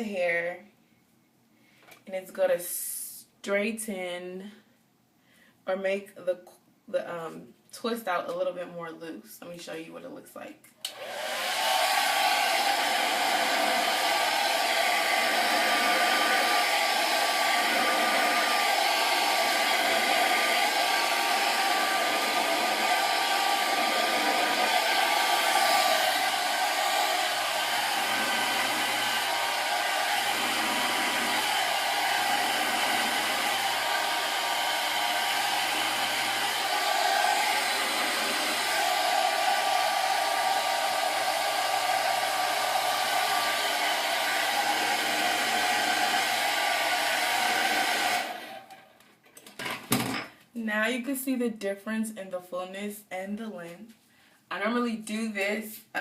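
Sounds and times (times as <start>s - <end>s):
hair dryer blowing: 10.9s - 48.9s.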